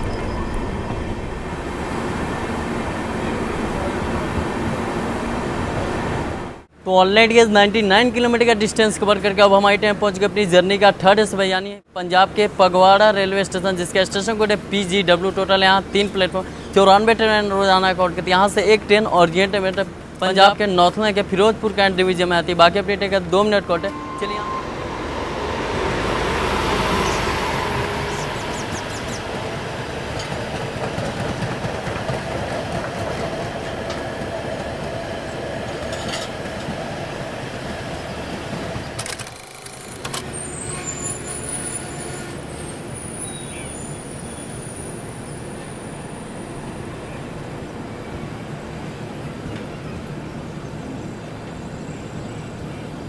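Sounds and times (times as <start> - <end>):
electric locomotive passing: 0.0 - 6.7, 12.3 - 53.0
train coaches rumbling and clattering: 0.0 - 6.7, 12.2 - 53.0
thin high whine: 22.7 - 30.3.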